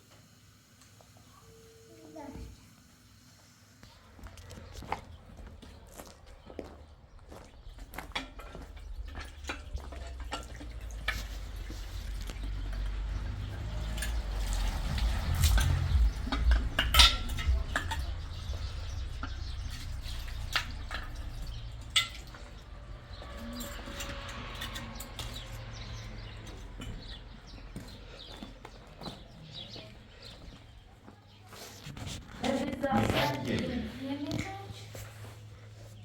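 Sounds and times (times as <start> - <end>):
sharp clicks and knocks: 8.0 - 22.6
low rumble: 8.2 - 27.5.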